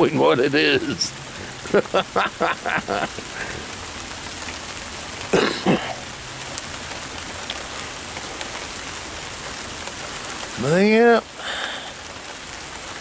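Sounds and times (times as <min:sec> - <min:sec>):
steady rain: 0:00.0 - 0:13.0
person clearing throat: 0:05.3 - 0:06.0.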